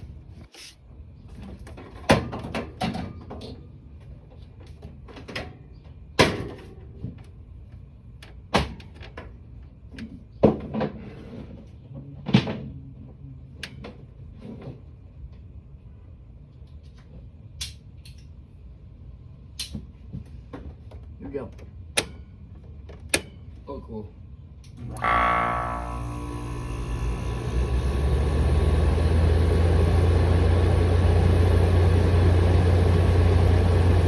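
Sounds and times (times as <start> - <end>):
faint low hum: 24.0 - 29.6.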